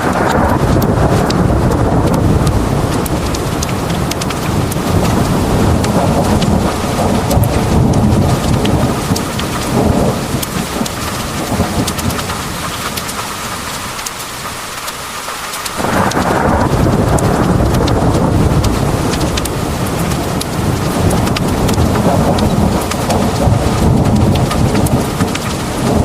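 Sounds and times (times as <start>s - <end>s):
heavy rain pouring: 0.0s - 26.0s
thunder rumbling: 0.0s - 26.0s.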